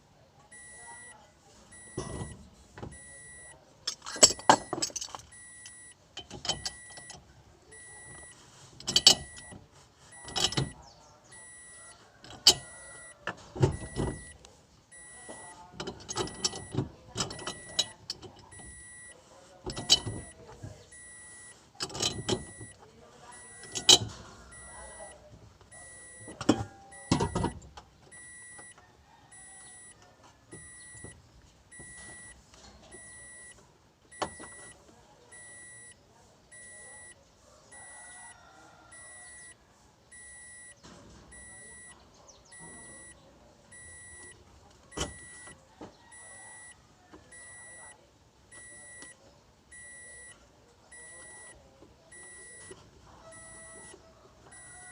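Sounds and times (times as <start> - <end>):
high electronic beeps: 42.5 - 43.2.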